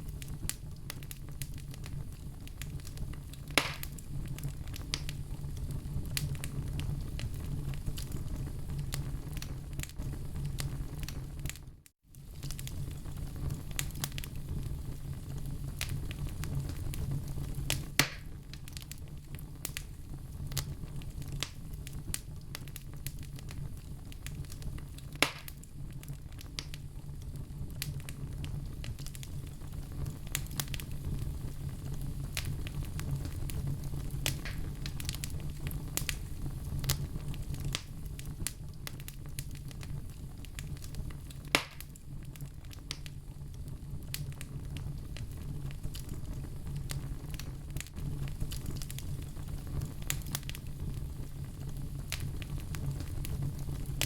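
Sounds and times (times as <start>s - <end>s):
sharp pops of fire: 0.0s - 11.6s, 12.2s - 43.2s, 44.0s - 54.0s
fire crackling in stove: 0.0s - 54.0s.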